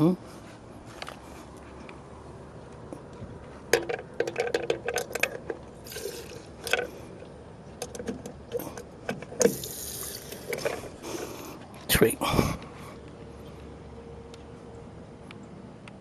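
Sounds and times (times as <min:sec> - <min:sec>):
fuel hissing into cup: 0:05.9 - 0:06.5, 0:09.5 - 0:10.7.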